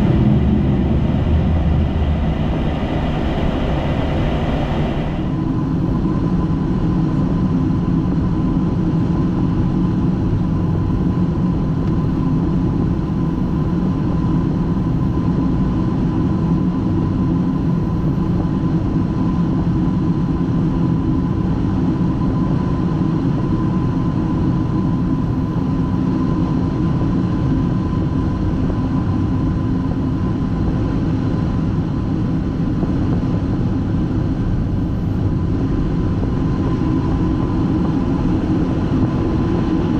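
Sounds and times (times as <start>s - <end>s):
airflow and engine noise: 0.0s - 39.9s
thin steady whine: 0.0s - 39.9s.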